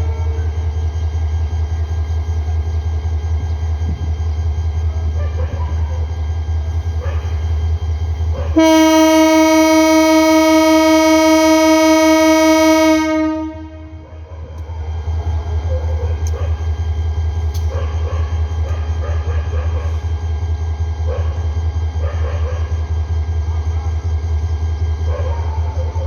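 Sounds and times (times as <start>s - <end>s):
train rumble: 0.0s - 26.0s
train horn blast: 8.5s - 14.2s.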